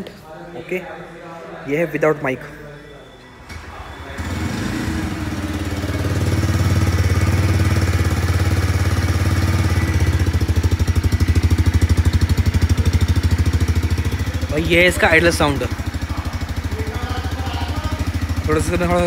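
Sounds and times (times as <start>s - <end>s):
motorcycle engine idling: 3.5s - 19.0s.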